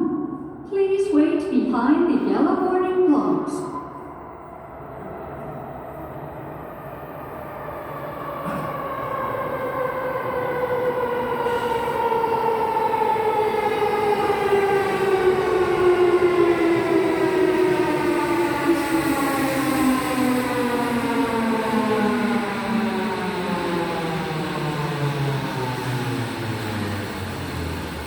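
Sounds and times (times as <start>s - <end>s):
subway train motor whine: 3.3s - 28.0s
train running rumble: 21.4s - 28.0s.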